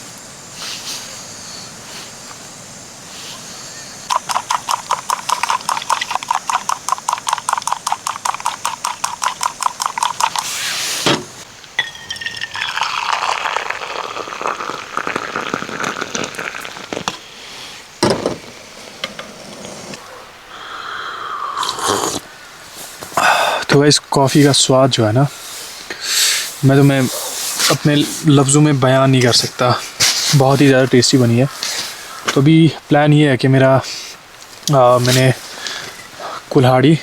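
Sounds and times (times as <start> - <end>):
liquid pouring: 4.1 - 10.6, 11.8 - 17.2
spoon clinking in a mug: 11.8 - 13.4.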